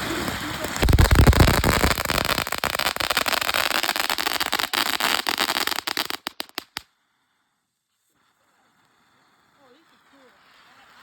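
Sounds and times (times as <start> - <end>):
firework hissing and crackling: 0.0 - 6.8.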